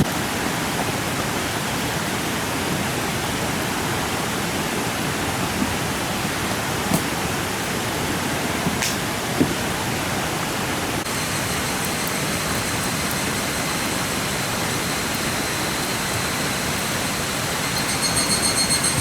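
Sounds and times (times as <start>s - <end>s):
steady rushing noise: 18.8s - 19.0s.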